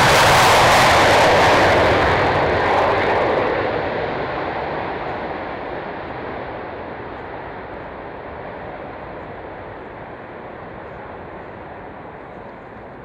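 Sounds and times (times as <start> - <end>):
jet engine roar at takeoff: 0.0 - 13.0.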